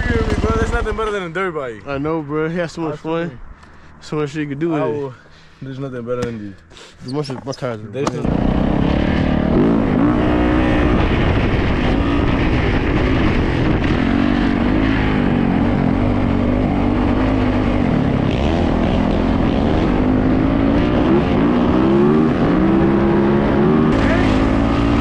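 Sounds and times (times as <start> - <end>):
dirt bike engine revving: 0.0 - 1.2, 8.1 - 25.0.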